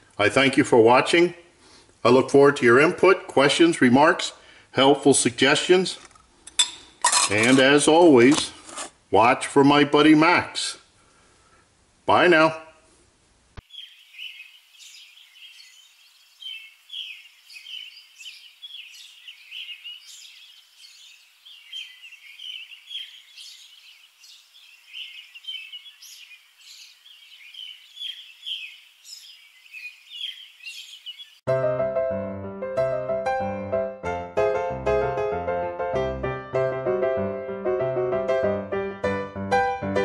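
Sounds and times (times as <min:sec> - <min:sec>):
birds chirping: 0:13.6 - 0:31.5.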